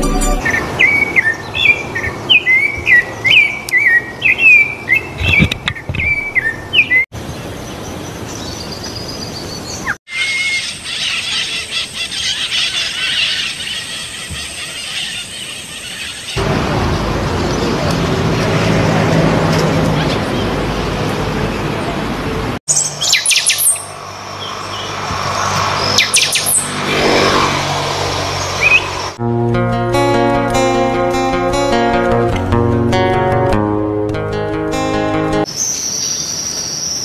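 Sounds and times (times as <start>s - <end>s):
songbird sharp rising chirps: 22.7s - 26.8s
steady outdoor hiss: 33.8s - 37.0s.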